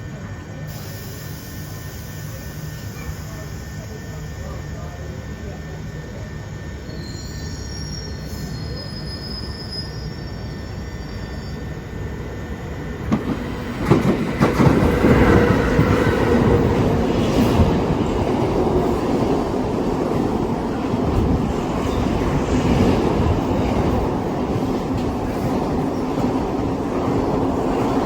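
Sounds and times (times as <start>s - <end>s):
train low rumble: 0.0s - 28.0s
wheel squeal: 6.9s - 11.8s.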